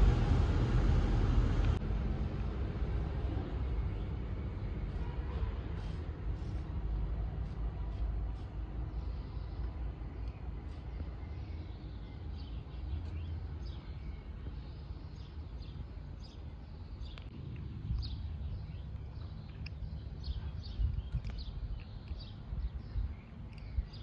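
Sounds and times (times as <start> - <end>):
low steady rumble: 0.0 - 12.2, 17.2 - 24.0
small birds chirping: 3.3 - 24.0.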